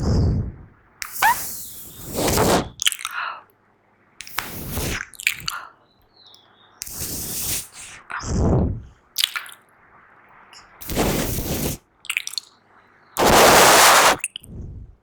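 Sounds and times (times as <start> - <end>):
wet mouth blowing bursts: 0.0 - 3.1, 4.2 - 5.6, 6.8 - 8.9, 10.8 - 11.8, 13.2 - 14.6
short mouth pops: 4.2 - 5.6.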